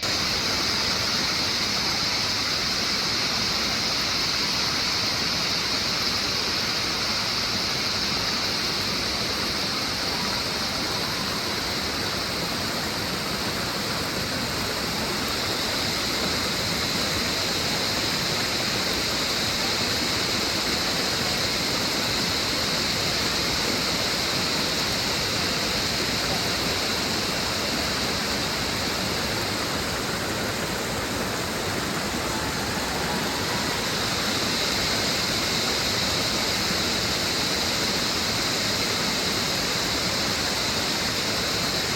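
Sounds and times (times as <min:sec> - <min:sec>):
cicadas buzzing: 0:00.0 - 0:41.9.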